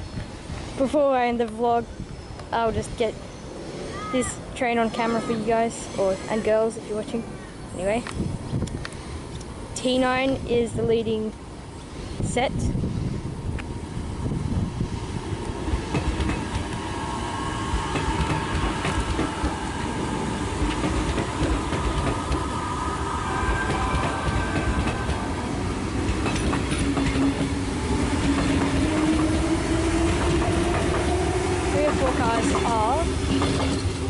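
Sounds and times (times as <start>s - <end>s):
electric train rumble: 0.0s - 34.0s
faint drifting tones: 16.4s - 34.0s.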